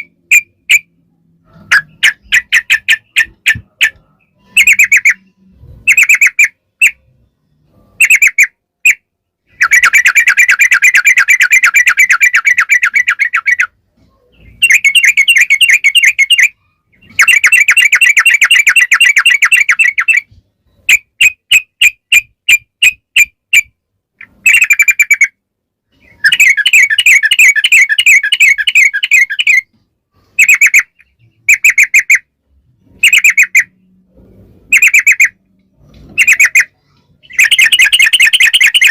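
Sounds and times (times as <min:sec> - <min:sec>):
bird singing bubbly trills: 0:14.4 - 0:20.2, 0:37.2 - 0:38.9.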